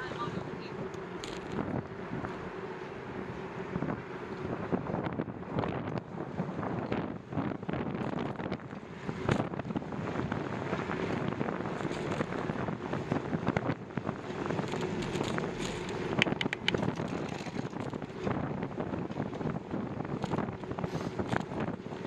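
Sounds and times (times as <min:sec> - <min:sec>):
wind buffeting microphone: 0:00.0 - 0:22.0
sharp clicks and knocks: 0:14.7 - 0:18.0.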